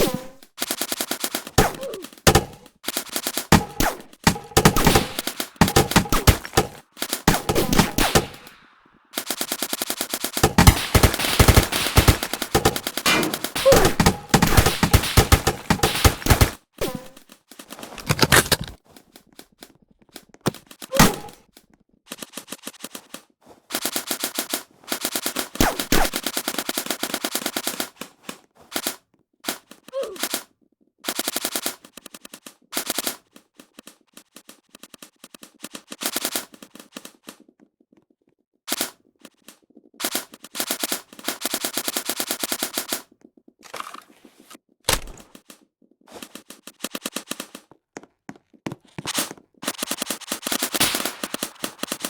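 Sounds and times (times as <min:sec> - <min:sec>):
airsoft guns firing full auto: 0:00.6 - 0:08.6, 0:09.2 - 0:17.0, 0:49.6 - 0:52.0.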